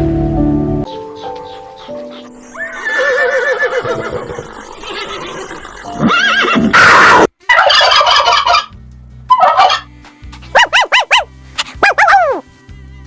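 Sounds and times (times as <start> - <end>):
horse whinnying: 2.6 - 8.7.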